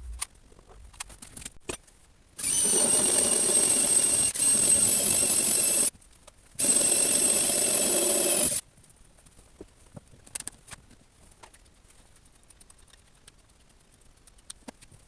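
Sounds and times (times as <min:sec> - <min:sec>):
power tool motor whining: 0:02.4 - 0:05.9, 0:06.6 - 0:08.6.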